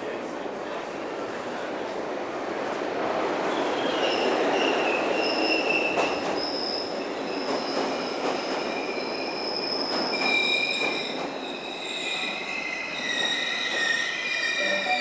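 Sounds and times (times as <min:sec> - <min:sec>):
train wheels squealing on rails: 0:03.4 - 0:15.0.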